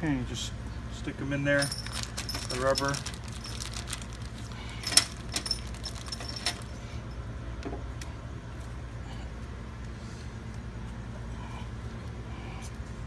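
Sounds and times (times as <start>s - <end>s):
steady low hum: 0.0s - 13.0s
metal hardware clinking and rattling: 1.5s - 7.2s.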